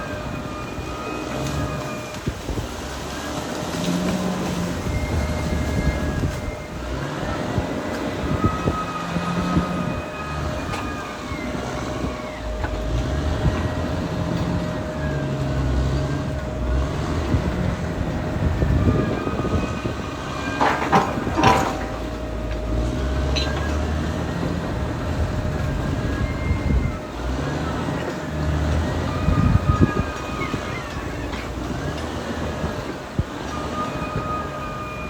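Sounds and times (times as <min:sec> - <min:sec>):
bulldozer diesel engine droning: 0:00.0 - 0:35.0
tracks squealing: 0:04.8 - 0:32.0
metallic clanks: 0:20.2 - 0:24.5.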